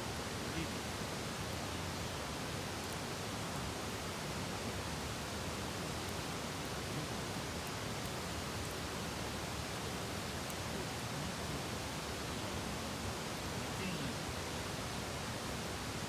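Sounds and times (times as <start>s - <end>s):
rushing hiss of outdoor noise: 0.0s - 16.0s.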